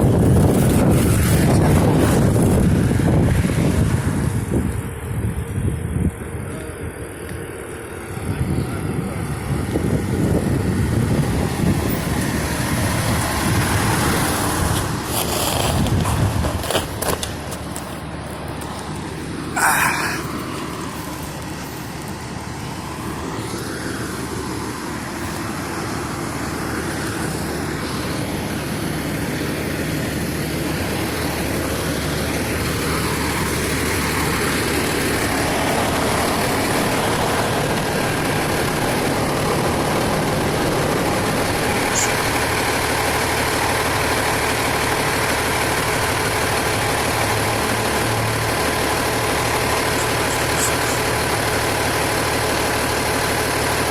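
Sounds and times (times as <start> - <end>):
large vehicle engine running: 0.0 - 53.9.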